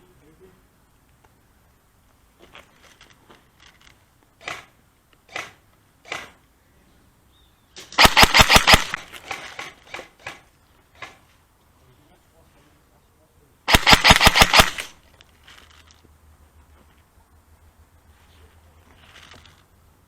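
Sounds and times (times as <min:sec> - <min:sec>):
airsoft guns firing: 0:07.8 - 0:11.2, 0:13.7 - 0:15.0.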